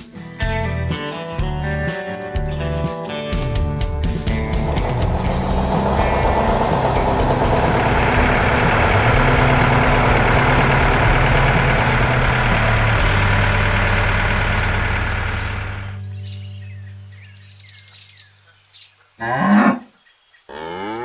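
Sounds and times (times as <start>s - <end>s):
heavy farm machine engine running: 4.0s - 16.0s.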